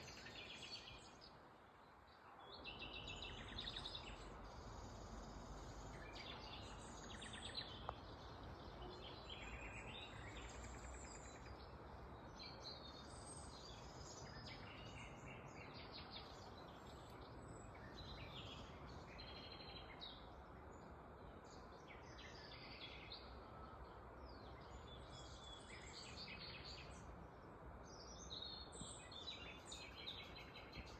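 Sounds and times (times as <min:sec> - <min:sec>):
small birds chirping: 0:00.0 - 0:30.9
low outdoor hum: 0:01.8 - 0:14.4.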